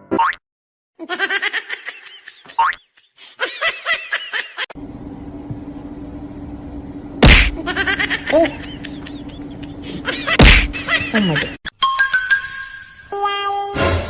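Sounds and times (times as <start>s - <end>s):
steady low hum: 4.8s - 11.6s
loud slap: 7.2s - 7.6s, 10.4s - 10.8s.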